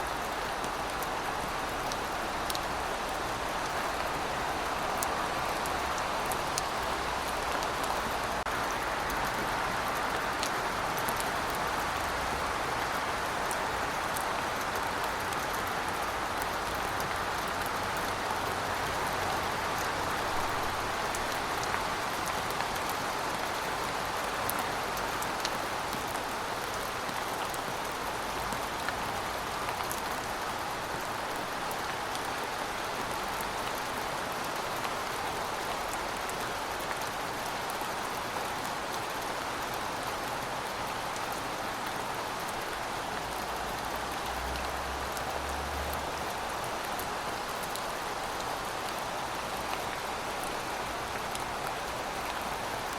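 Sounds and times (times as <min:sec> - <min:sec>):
steady rain hiss: 0:00.0 - 0:52.9
raindrops ticking on a surface: 0:00.1 - 0:52.9.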